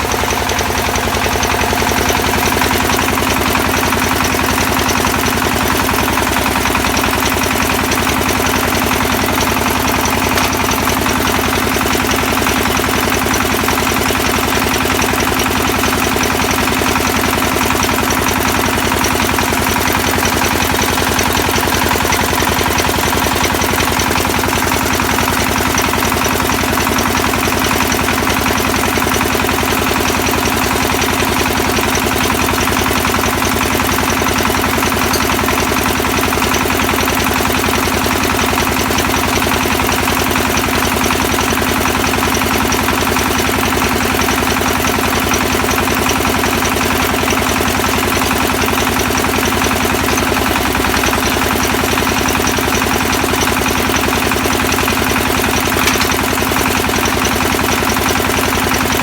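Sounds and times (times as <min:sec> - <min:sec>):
drilling rig engine pulsing: 0:00.0 - 0:26.8, 0:31.8 - 0:38.8, 0:49.1 - 0:59.0.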